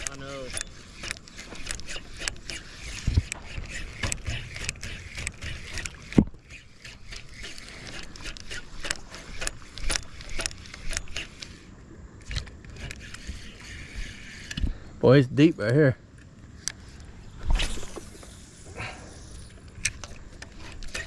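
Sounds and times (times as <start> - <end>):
gear clicking and knocking: 0.0 - 11.6, 12.2 - 14.7, 19.7 - 21.0.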